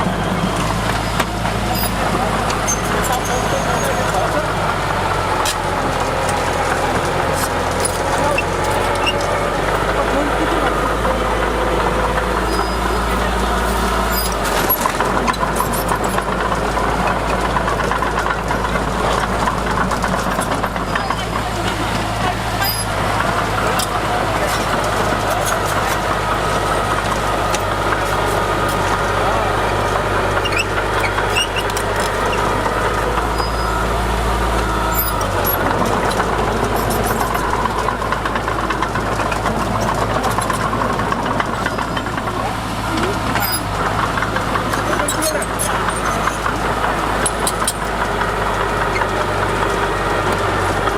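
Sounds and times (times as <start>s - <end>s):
heavy diesel engine running: 0.0s - 50.9s
metallic clicks and squeaks: 12.5s - 12.9s, 30.4s - 32.4s, 33.3s - 33.8s, 43.4s - 43.7s.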